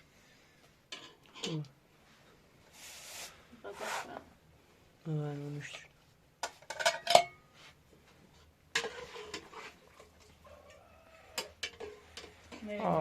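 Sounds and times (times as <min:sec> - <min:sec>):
dishes and utensils clinking: 0:06.4 - 0:07.4, 0:08.8 - 0:10.2, 0:11.3 - 0:13.0.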